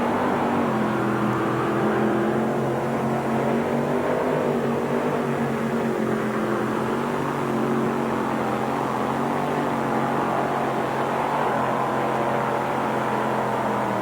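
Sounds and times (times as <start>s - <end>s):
tractor engine running hard: 0.0s - 14.0s.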